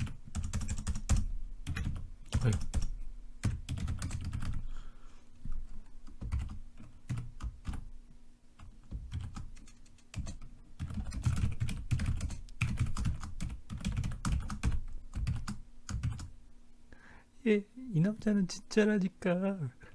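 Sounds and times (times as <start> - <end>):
typing on computer keyboard: 0.0 - 4.6, 6.0 - 7.8, 8.6 - 16.3.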